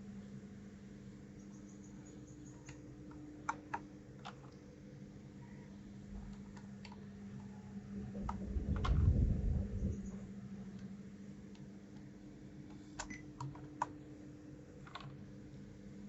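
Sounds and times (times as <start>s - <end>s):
steady low hum: 0.0s - 16.0s
low handling rumble: 7.9s - 10.4s.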